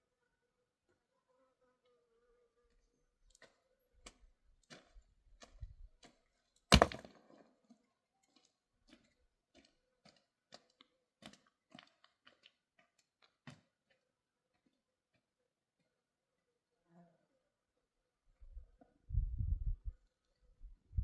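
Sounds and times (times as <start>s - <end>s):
sharp loud knock: 6.7s - 7.1s.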